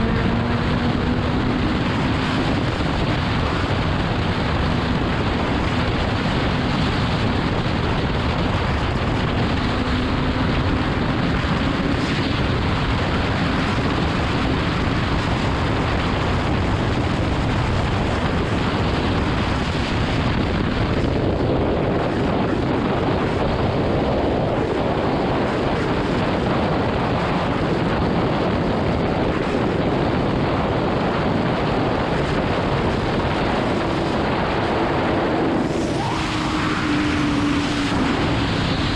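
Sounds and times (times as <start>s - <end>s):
motorcycle engine: 0.0s - 18.3s, 32.4s - 38.9s
wind rushing over microphone: 0.0s - 38.9s.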